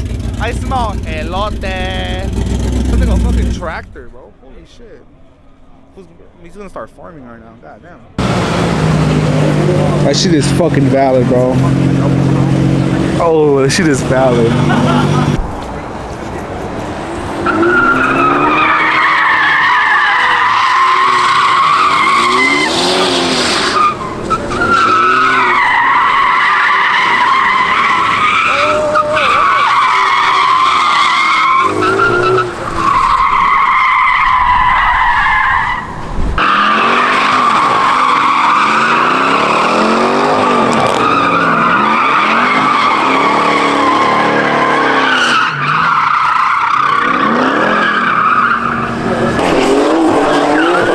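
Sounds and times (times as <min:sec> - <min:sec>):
car engine revving: 0:00.0 - 0:04.0, 0:08.2 - 0:50.9
car tyres squealing: 0:08.2 - 0:50.9.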